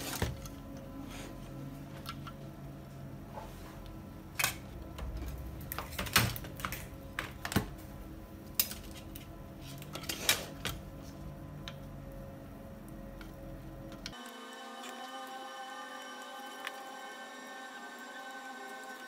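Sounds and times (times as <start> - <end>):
steady low hum: 0.0 - 14.3.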